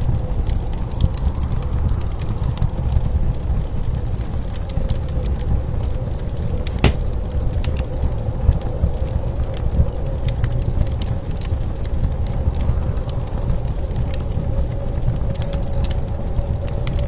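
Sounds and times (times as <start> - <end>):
wood fire crackling and popping: 6.6 - 7.2.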